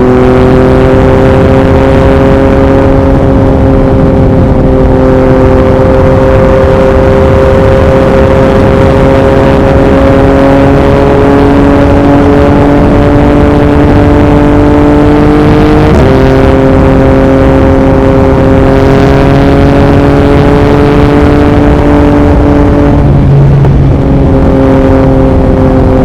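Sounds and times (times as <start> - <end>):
motorcycle engine revving: 0.0 - 26.0
wind noise on microphone: 0.0 - 26.0.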